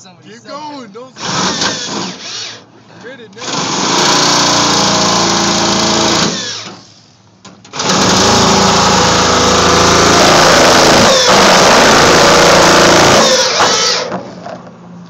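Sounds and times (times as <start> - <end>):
electric drill drilling: 1.2 - 2.6, 3.4 - 6.9, 7.7 - 14.2.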